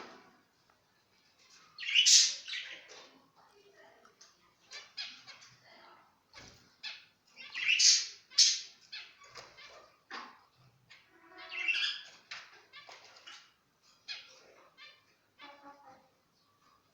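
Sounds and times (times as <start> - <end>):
finches calling: 1.8 - 2.9, 7.4 - 9.2, 11.4 - 12.1.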